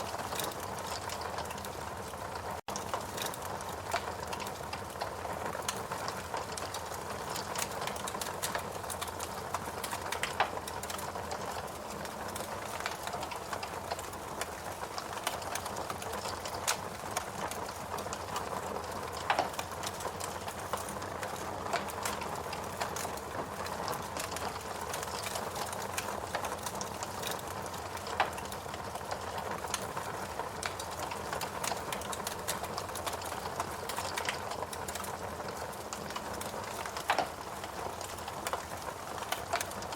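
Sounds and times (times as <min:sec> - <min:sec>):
log fire crackling and popping: 0:00.0 - 0:39.9.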